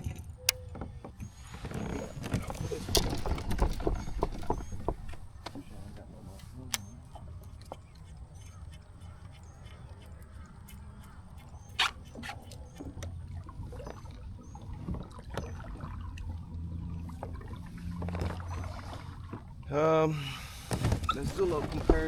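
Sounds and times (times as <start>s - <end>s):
knocks and clicks of gear: 0.0s - 10.4s, 20.4s - 22.0s
water lapping at kayak hull: 0.0s - 22.0s
small bird chirping: 0.4s - 13.3s.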